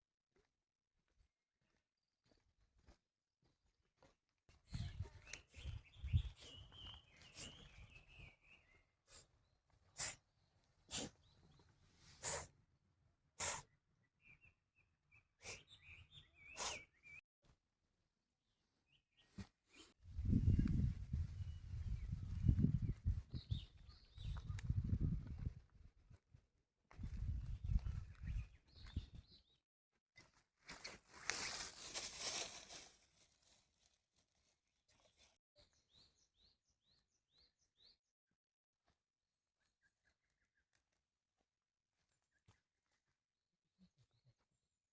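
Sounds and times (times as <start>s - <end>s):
short sharp hissing bursts: 13.4s - 13.6s
brief rustling: 30.7s - 33.6s.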